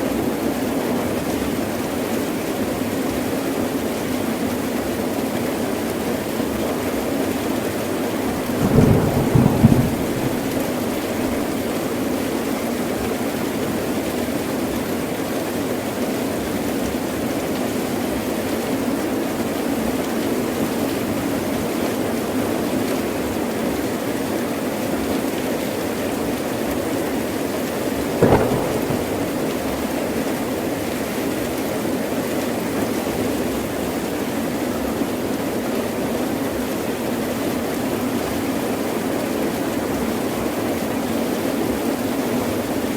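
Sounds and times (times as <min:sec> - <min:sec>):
heavy rain falling: 0:04.3 - 0:12.5, 0:28.0 - 0:30.8
thunder cracks: 0:08.4 - 0:11.7, 0:28.2 - 0:30.3.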